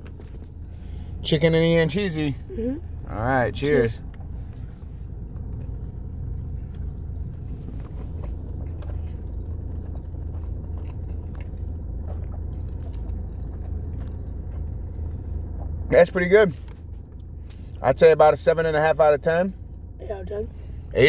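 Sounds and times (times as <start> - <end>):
people chewing food: 0.0 - 17.9
steady low rumble: 0.0 - 21.0.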